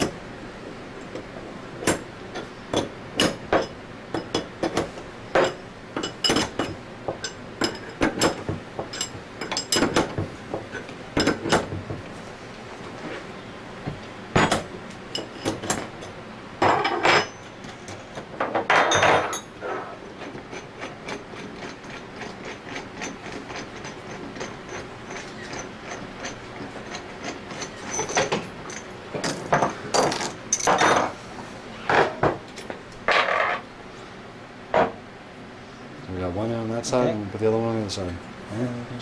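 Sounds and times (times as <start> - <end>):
tools and parts clinking: 1.8 - 11.8, 14.4 - 19.6, 20.2 - 31.2.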